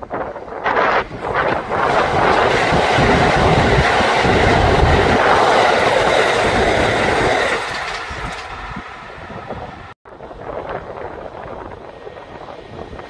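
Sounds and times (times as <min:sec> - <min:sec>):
electric train passing: 0:00.0 - 0:13.0
wheels clacking over rail joints: 0:00.1 - 0:10.0.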